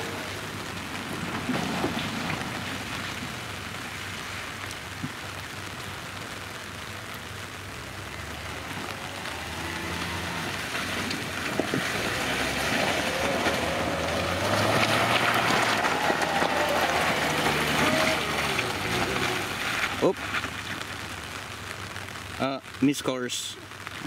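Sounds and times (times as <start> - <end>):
car engine running: 7.0 - 21.1.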